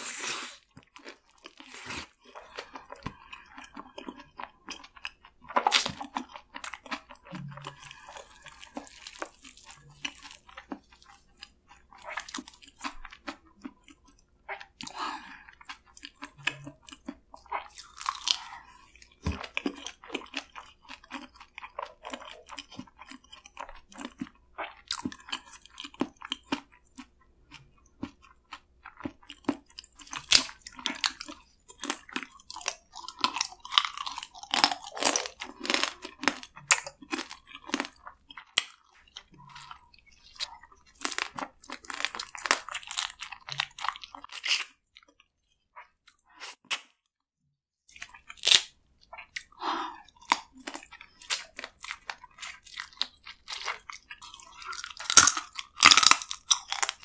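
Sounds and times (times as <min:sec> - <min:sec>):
wet chewing: 0:00.0 - 0:46.8, 0:47.9 - 0:57.0
crab shell crunching: 0:48.0 - 0:49.6, 0:50.2 - 0:57.0.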